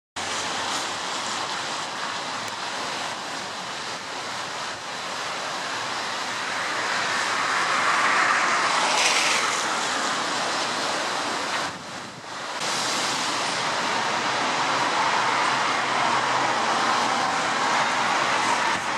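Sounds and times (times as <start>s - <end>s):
road traffic rush: 0.2s - 18.9s
vehicle passing close: 6.4s - 11.8s.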